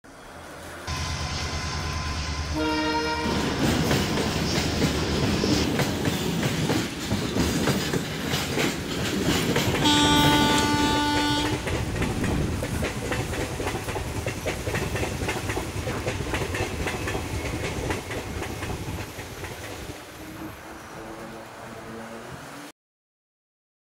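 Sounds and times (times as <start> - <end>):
passing train rumble: 0.1 - 22.7
train horn: 0.9 - 3.6, 9.8 - 11.7, 20.2 - 22.7
wheels clacking over rail joints: 3.2 - 21.8.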